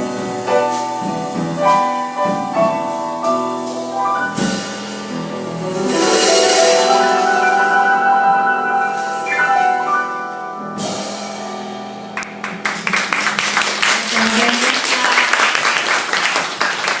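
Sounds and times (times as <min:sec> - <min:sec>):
piano notes ringing: 0:00.0 - 0:14.5
audience clapping: 0:12.2 - 0:17.0.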